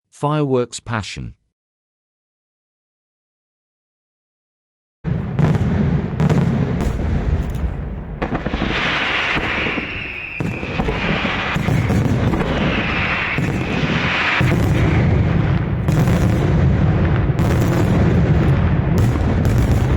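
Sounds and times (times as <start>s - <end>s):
crackling hiss of fireworks: 5.1s - 19.9s
firework shell bursts booming: 5.1s - 19.9s.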